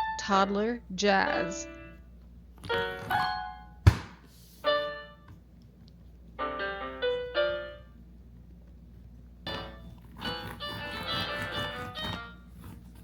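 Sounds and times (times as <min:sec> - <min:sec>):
sharp thump: 0:03.8 - 0:04.2
electric piano notes: 0:06.4 - 0:08.0.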